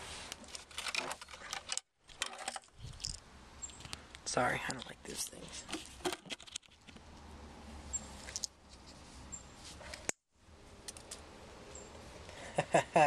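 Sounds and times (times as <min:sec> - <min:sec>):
objects clicking and rustling: 0:00.3 - 0:04.0, 0:04.6 - 0:07.0.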